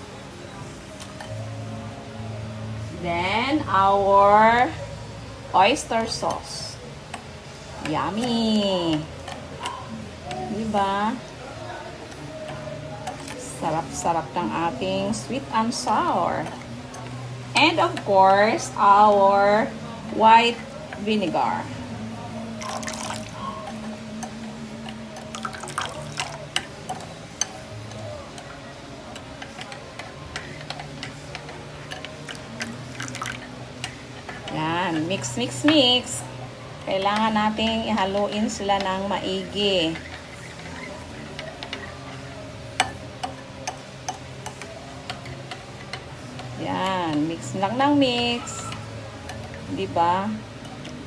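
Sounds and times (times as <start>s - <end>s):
vinegar pouring into bowl: 22.6s - 23.4s
utensil clicking against a bowl: 22.6s - 36.2s, 36.9s - 51.0s.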